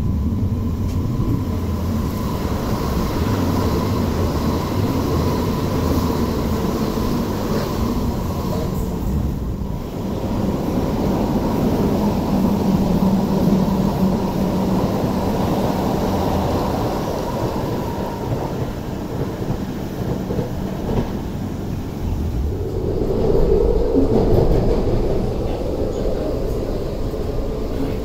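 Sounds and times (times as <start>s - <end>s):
train rumbling along track: 0.0s - 28.0s
low hum: 22.0s - 28.0s.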